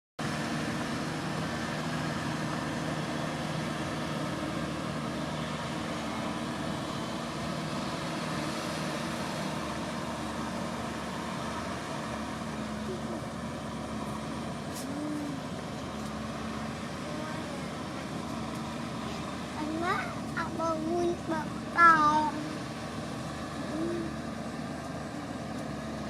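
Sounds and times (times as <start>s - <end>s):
tractor diesel engine running: 0.2s - 26.0s.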